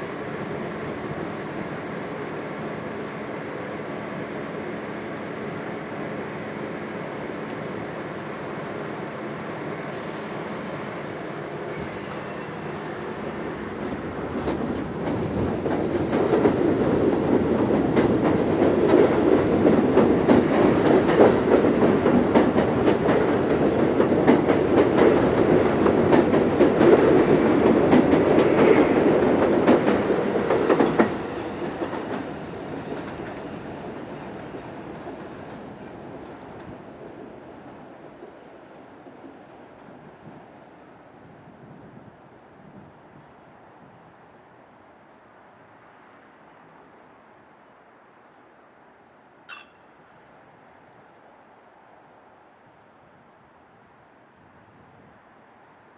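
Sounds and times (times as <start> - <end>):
subway train rumbling past: 0.0 - 49.0
wheels clacking over rail joints: 13.8 - 38.4.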